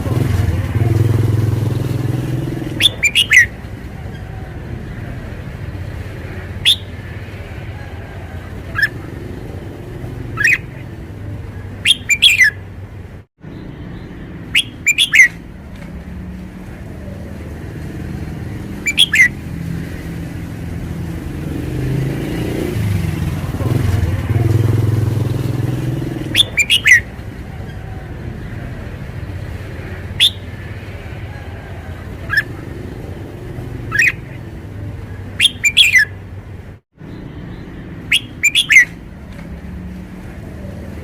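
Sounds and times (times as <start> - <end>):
motor vehicle passing: 0.0 - 41.0
traffic rumble: 0.0 - 41.0
bird singing short phrases: 2.7 - 3.5, 6.6 - 7.0, 11.8 - 12.6, 13.6 - 15.4, 18.8 - 19.3, 26.2 - 27.0, 30.2 - 30.5, 33.9 - 34.4, 35.4 - 36.1, 37.2 - 39.0.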